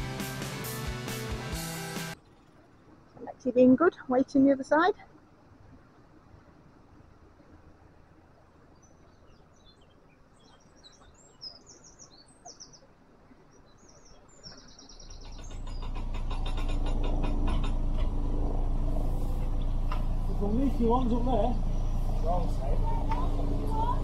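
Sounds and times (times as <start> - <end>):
small birds chirping: 7.1 - 18.2, 19.0 - 24.0
boat engine knocking: 14.9 - 24.0.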